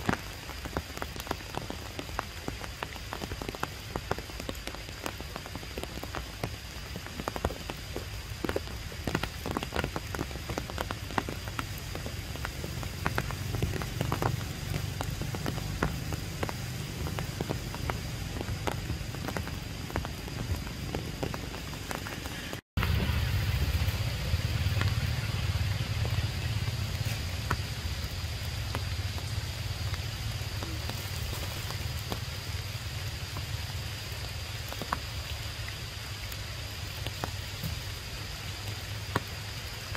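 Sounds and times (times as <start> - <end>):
rain hiss: 0.0 - 39.9
raindrops tapping: 0.0 - 39.9
low rumble: 12.3 - 32.4.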